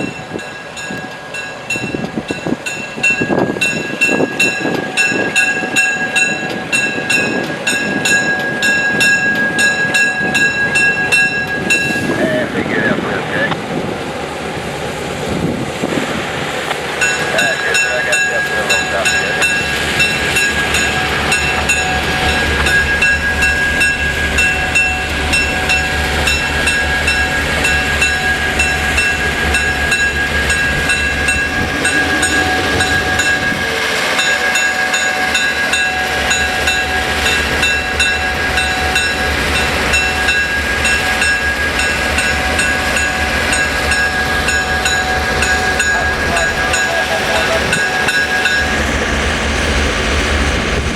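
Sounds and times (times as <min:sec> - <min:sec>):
freight train rumbling: 0:00.0 - 0:50.9
high-pitched whine: 0:17.4 - 0:35.6.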